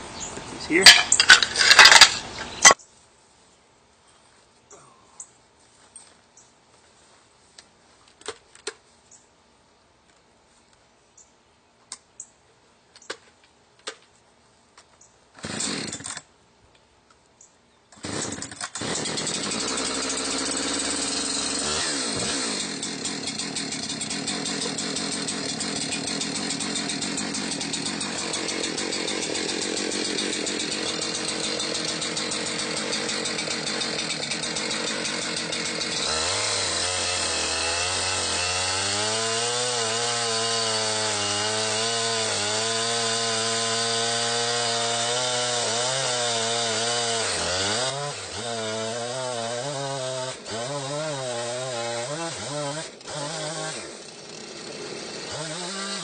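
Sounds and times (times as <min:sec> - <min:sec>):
chainsaw cutting log: 0:15.4 - 0:16.3, 0:18.0 - 0:56.0.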